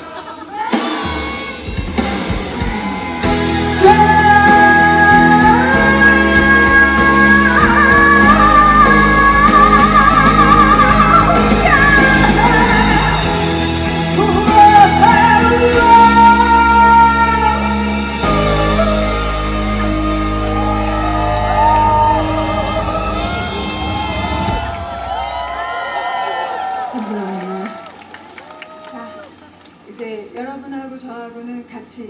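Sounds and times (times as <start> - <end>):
person singing with vibrato: 0.2 - 24.2
live band music: 0.7 - 25.0.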